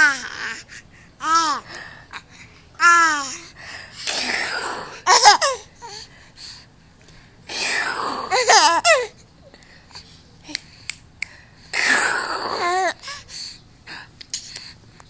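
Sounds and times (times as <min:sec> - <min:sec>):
baby laughing: 0:05.0 - 0:05.6, 0:08.3 - 0:09.1.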